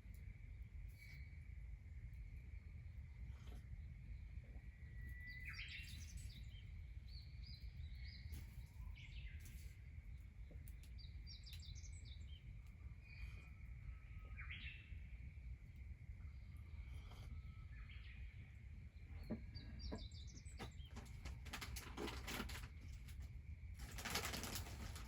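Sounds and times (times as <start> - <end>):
low background rumble: 0.0 - 25.0
birds singing: 3.6 - 22.9.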